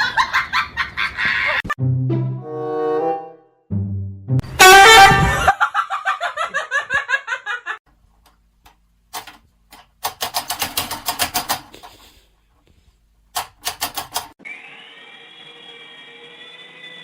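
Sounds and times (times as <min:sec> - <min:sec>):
rhythmic laughter: 0:00.0 - 0:01.8, 0:05.2 - 0:07.8.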